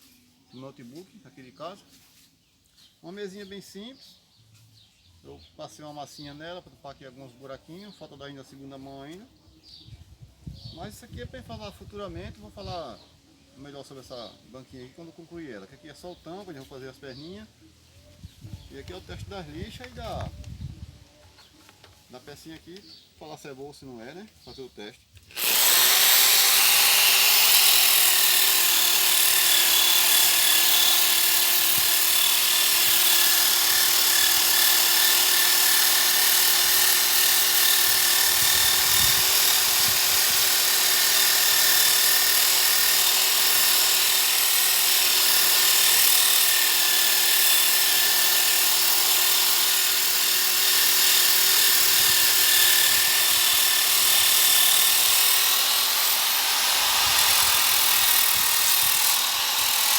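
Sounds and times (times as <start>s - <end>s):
electric drill motor whine: 25.3s - 59.9s
sanding disc hissing on wood: 51.3s - 59.9s.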